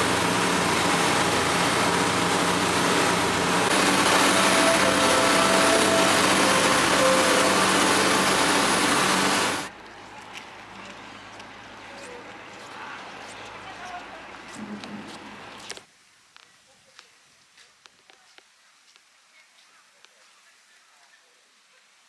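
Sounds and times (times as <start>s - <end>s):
water noise: 0.0s - 9.7s
boat engine humming: 0.0s - 9.8s.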